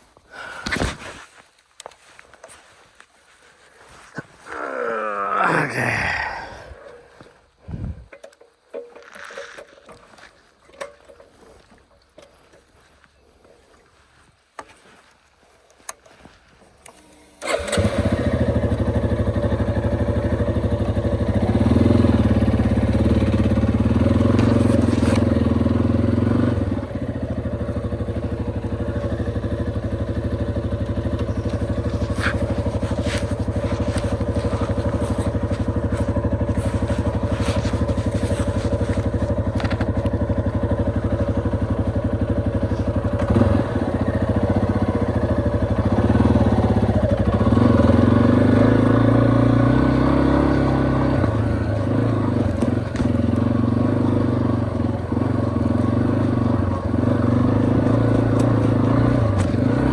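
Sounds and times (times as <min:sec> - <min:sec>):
motorcycle engine running: 0:17.4 - 0:59.9.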